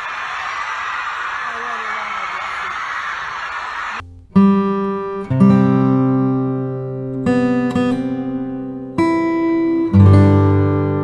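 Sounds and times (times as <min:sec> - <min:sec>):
acoustic guitar chords ringing: 0:04.0 - 0:11.0.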